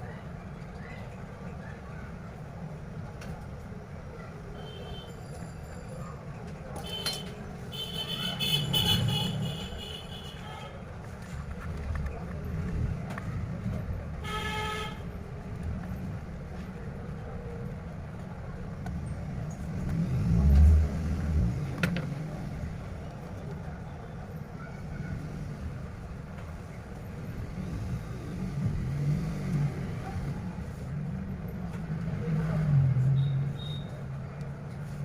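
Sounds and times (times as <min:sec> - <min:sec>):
road traffic rumble: 0:00.0 - 0:35.0
vehicle horn toot: 0:14.2 - 0:15.0, 0:33.2 - 0:34.0
vehicle passing: 0:27.4 - 0:35.0.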